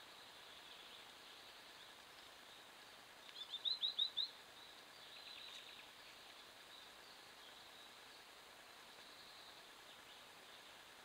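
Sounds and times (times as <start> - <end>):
microphone hiss: 0.0 - 11.0.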